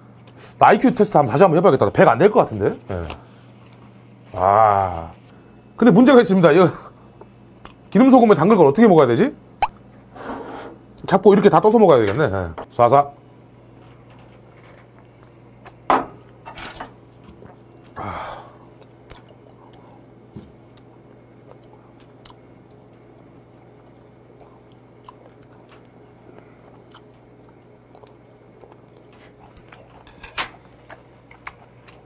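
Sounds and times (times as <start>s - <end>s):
quiet chewing: 7.2s - 7.9s, 13.2s - 16.4s, 17.1s - 18.0s, 18.6s - 32.0s
breathy exhale: 18.0s - 18.6s.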